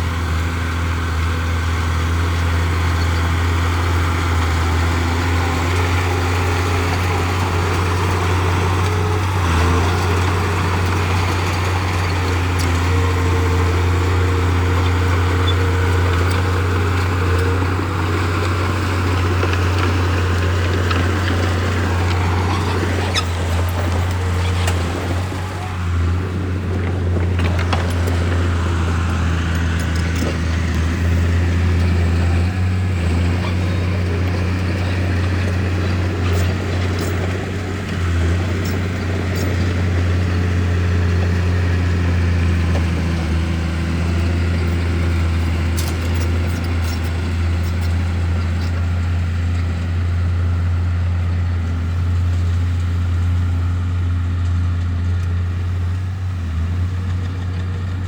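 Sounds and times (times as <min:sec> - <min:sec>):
diesel engine droning: 0:00.0 - 0:58.0
light clicks and clanks: 0:26.7 - 0:40.2, 0:41.8 - 0:49.8.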